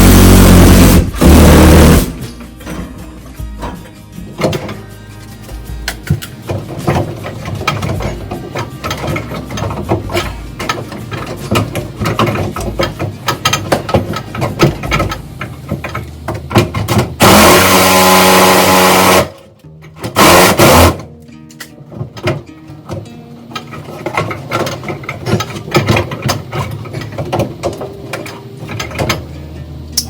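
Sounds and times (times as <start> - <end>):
power cutting tool: 0.0 - 2.2, 17.2 - 19.4, 20.2 - 21.0
clicking and knocking of hand work: 0.8 - 17.9, 19.0 - 29.3.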